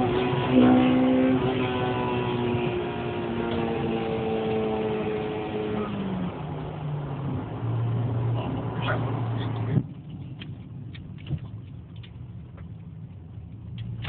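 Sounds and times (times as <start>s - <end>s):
car engine revs falling: 0.0s - 10.0s.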